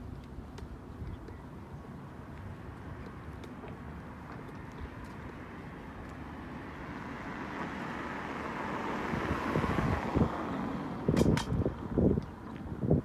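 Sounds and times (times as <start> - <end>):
car passing on road: 3.8 - 12.1
wind buffeting microphone: 8.4 - 13.0.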